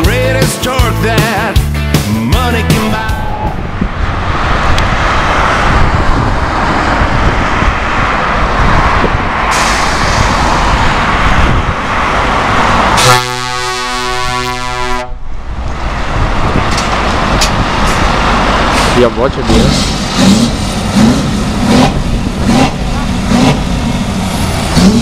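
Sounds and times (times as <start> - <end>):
truck engine running loud: 0.0 - 25.0
air horn blast: 13.0 - 15.3.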